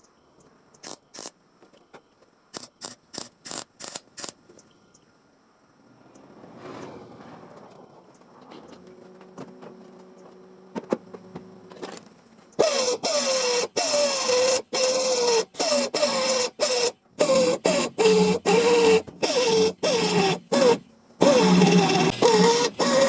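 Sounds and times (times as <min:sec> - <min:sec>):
buzzing crackling welding arc: 0:00.8 - 0:01.3, 0:02.5 - 0:04.4.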